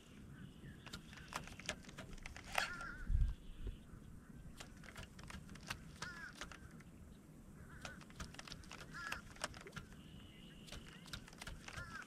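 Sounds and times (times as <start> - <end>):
faint wavering bird calls: 0.0 - 12.0
sharp clicks: 0.8 - 3.0, 4.5 - 6.9, 7.8 - 10.0, 10.6 - 12.0.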